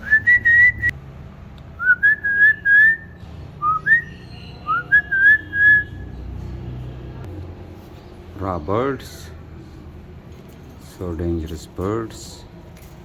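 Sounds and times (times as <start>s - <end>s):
person whistling rising notes: 0.0s - 0.9s, 1.8s - 4.1s, 4.7s - 6.0s.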